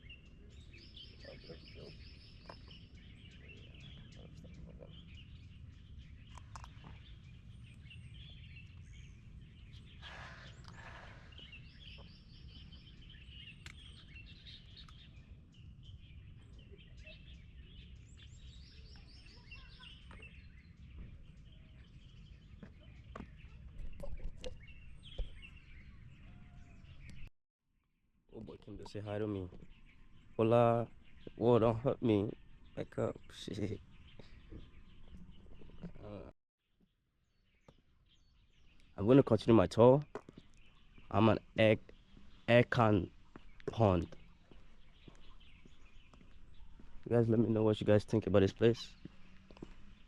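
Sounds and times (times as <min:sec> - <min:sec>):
birds singing: 0:00.0 - 0:27.3, 0:28.3 - 0:36.3, 0:37.2 - 0:50.0.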